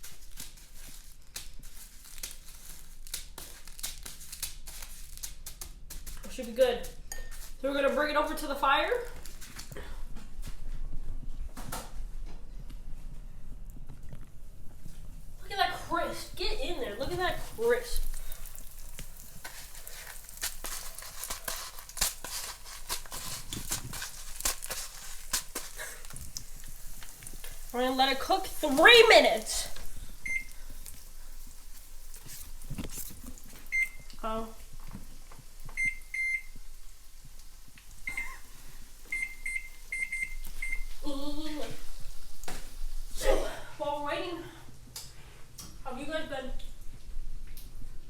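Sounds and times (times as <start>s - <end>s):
food frying in hot oil: 0.0s - 7.7s, 14.7s - 43.2s.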